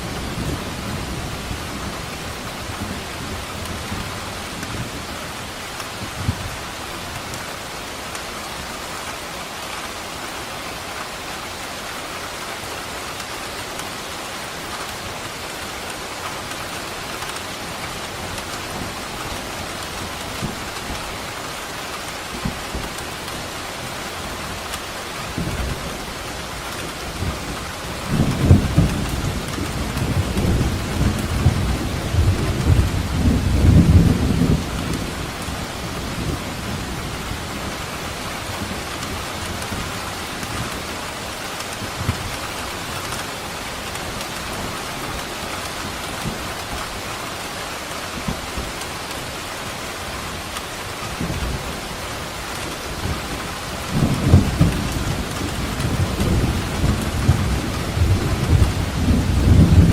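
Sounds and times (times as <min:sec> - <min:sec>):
heavy rain hissing: 0:00.0 - 0:59.9
rumbling thunder: 0:27.1 - 0:37.8, 0:52.5 - 0:59.9.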